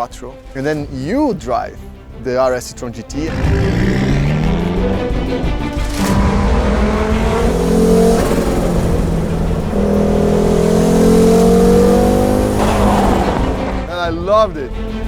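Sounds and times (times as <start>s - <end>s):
car engine accelerating hard: 3.1s - 14.1s.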